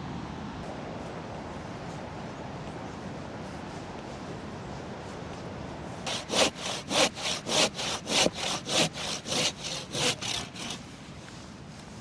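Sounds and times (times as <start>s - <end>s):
hand saw cutting wood: 6.1s - 10.9s.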